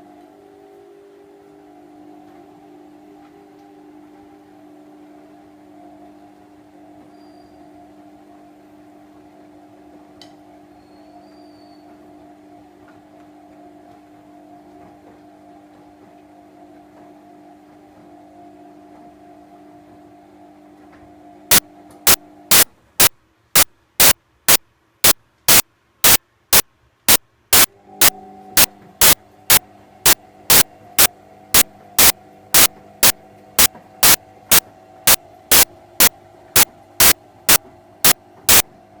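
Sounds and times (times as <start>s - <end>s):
washing machine hum: 0.0s - 24.1s, 27.1s - 39.0s
loud sharp clicks: 21.5s - 27.7s, 31.6s - 33.2s, 34.0s - 37.2s.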